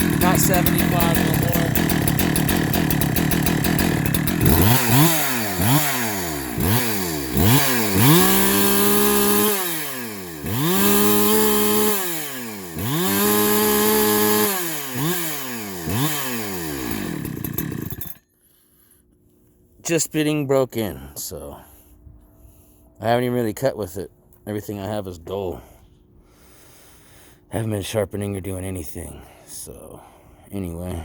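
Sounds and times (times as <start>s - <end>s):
chainsaw revving: 0.0s - 18.2s.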